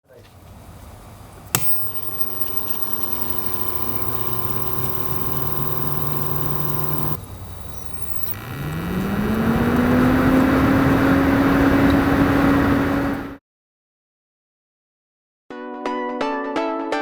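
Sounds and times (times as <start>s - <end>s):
electric fan motor humming: 0.4s - 13.4s
sharp click: 1.5s - 8.4s.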